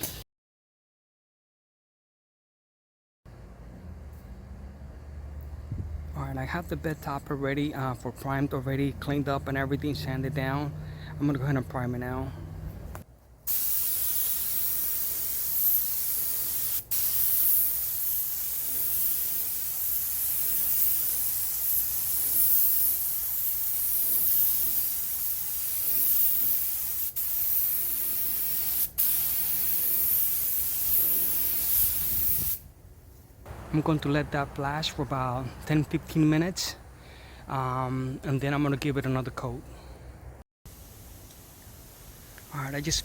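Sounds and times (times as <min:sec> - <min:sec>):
paint spray gun hissing: 0:13.5 - 0:32.7.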